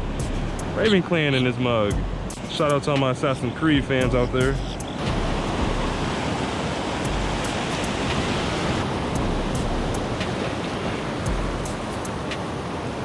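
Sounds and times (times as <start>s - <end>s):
ocean surf breaking on beach: 0.0s - 13.0s
wind rumbling on microphone: 3.8s - 13.0s.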